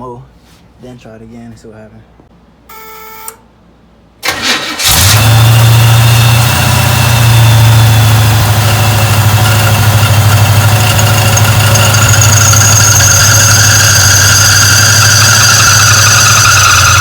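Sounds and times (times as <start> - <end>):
engine starting and running: 4.2 - 17.0.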